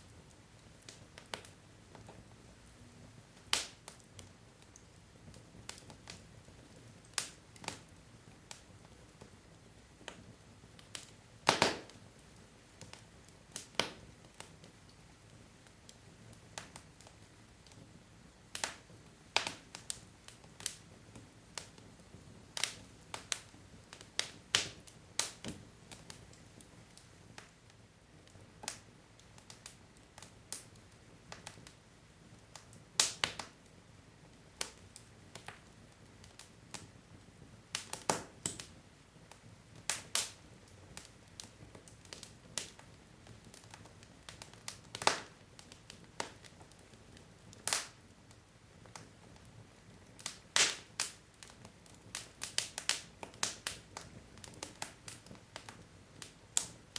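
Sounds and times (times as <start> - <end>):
logs crackling in fireplace: 0.0 - 56.9.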